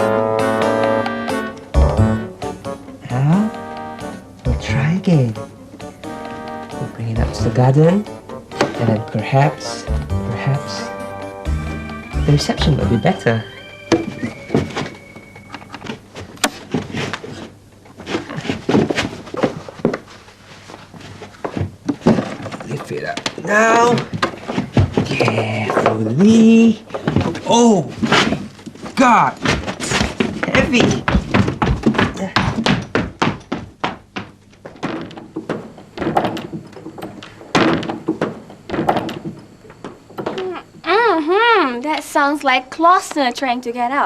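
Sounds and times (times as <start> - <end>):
heavy machine knocks and clunks: 34.7 - 40.4.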